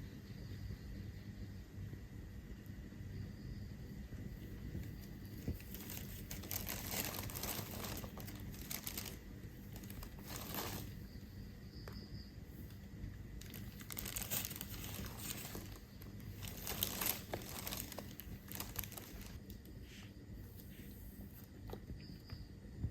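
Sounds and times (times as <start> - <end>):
plastic bag crinkling: 5.0 - 11.1, 13.4 - 19.6.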